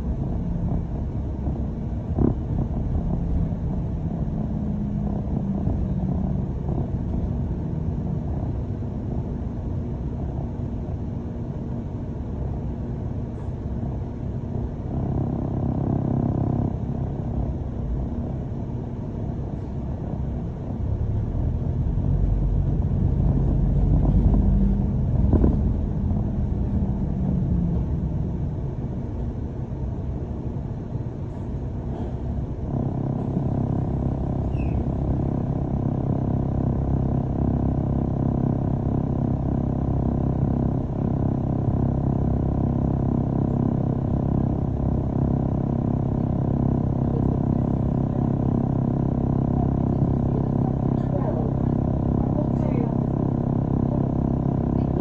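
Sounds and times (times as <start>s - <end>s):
bus motor and road rumble: 0.0s - 55.0s
faint hum: 0.0s - 55.0s.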